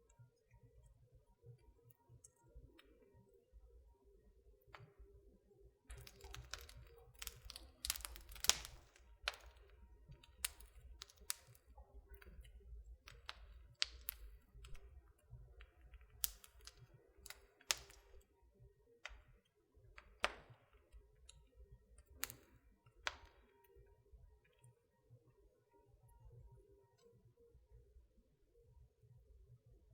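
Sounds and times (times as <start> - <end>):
wood fire crackling: 5.9 - 18.4, 19.0 - 23.9.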